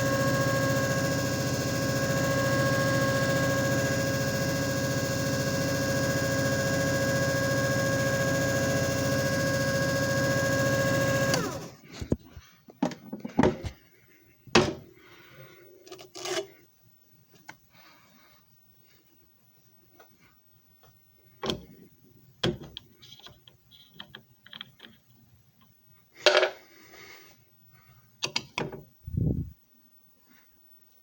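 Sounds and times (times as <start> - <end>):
low buzz: 0.0 - 11.7
machine whine and hum: 0.0 - 12.3.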